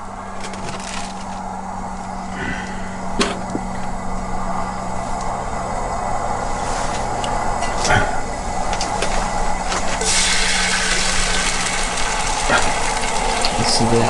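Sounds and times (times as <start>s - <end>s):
steady engine hum: 0.0s - 14.0s
bread sizzling in butter: 10.0s - 13.6s.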